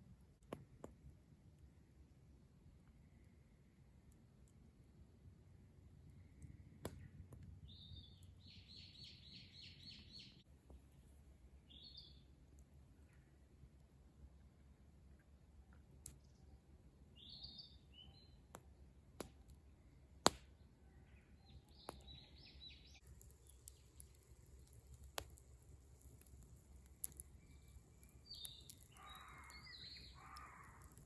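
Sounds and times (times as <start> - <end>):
faint bird calls and chirps: 6.0 - 10.5, 11.6 - 12.3, 16.2 - 18.6, 20.6 - 24.8, 26.0 - 31.0
sharp pops: 20.2 - 20.5, 23.0 - 31.0.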